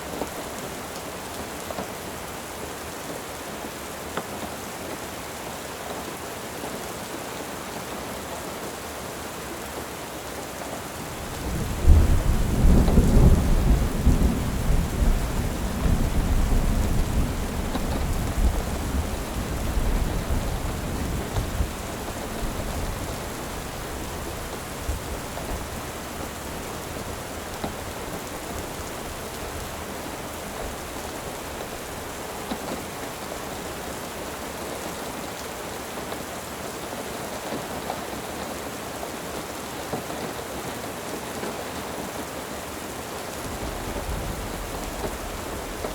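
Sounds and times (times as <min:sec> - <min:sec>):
steady rain: 0:00.0 - 0:45.9
thunder rumbling: 0:11.1 - 0:32.5, 0:43.4 - 0:45.9.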